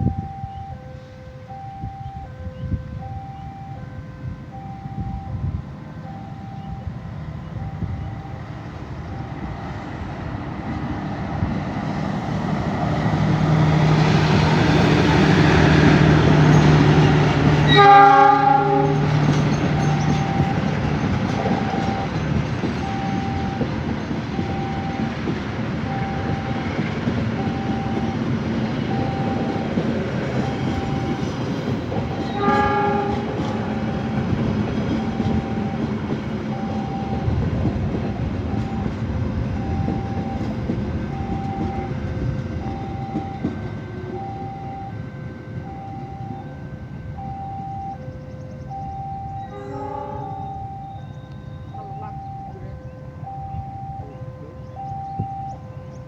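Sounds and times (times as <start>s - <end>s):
level crossing warning bell: 0.0s - 10.0s, 11.5s - 56.0s
diesel locomotive engine drone: 0.0s - 56.0s
train horn blast: 13.4s - 19.1s, 32.1s - 35.8s, 49.3s - 53.6s.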